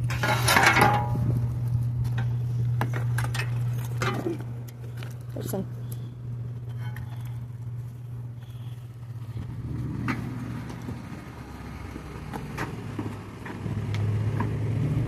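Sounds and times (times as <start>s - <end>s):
scrap metal clinking: 0.0s - 1.2s
vehicle engine running: 0.0s - 15.0s.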